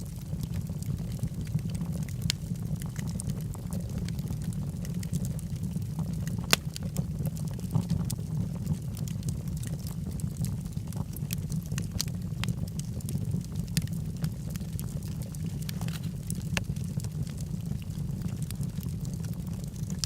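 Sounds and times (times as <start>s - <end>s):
wood crackling and popping: 0.0s - 20.0s
fire flames rushing: 4.1s - 20.0s.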